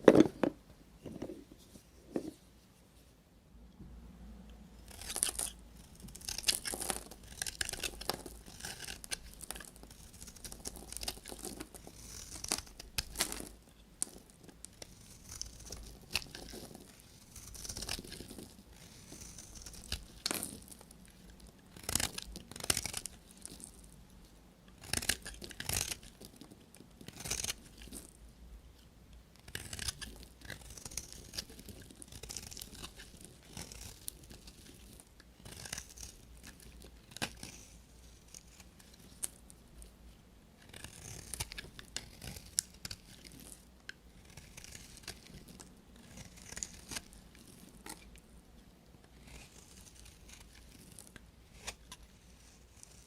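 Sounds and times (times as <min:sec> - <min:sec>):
knife cutting through soap: 0:29.4 - 0:39.3, 0:49.2 - 0:53.0.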